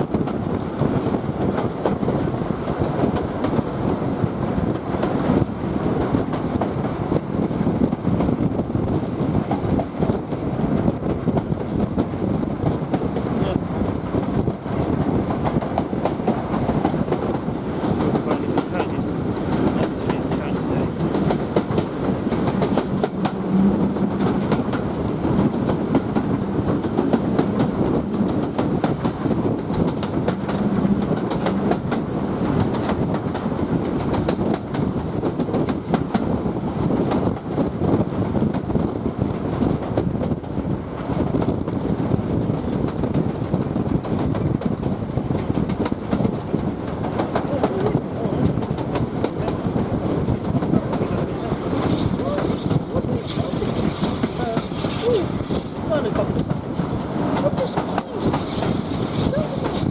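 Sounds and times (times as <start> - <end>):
train wheels rumbling on rails: 0.0 - 59.9
rail joint clicks: 4.5 - 7.3, 14.2 - 39.0, 42.6 - 59.9.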